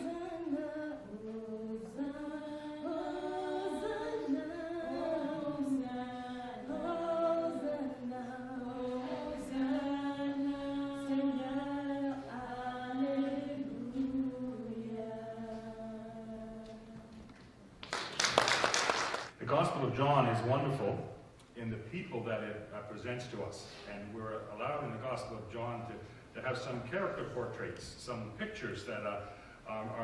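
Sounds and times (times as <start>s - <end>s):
group singing a hymn: 0.0s - 17.1s.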